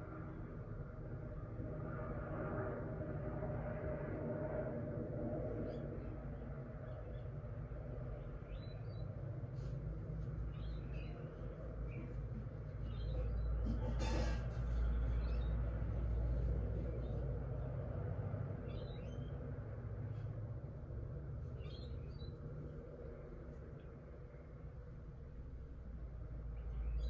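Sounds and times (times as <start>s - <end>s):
steady low rumble: 0.0s - 27.0s
small birds chirping: 5.6s - 27.0s.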